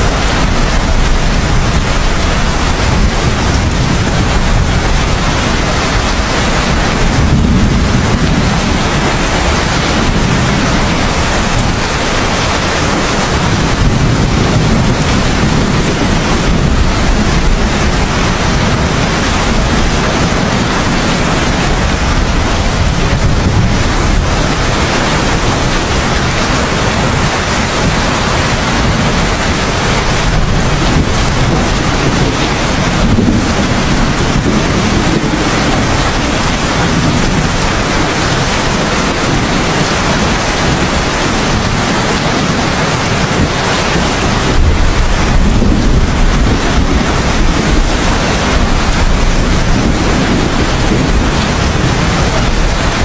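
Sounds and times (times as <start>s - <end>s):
low rumble: 0.0s - 35.0s
heavy rain hissing: 0.0s - 53.0s.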